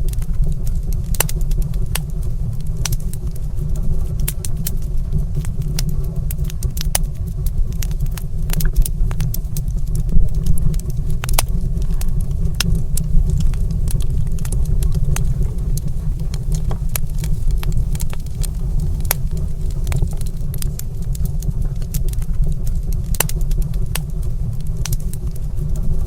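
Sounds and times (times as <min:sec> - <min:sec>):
wood fire crackling: 0:00.0 - 0:22.4, 0:23.1 - 0:26.0.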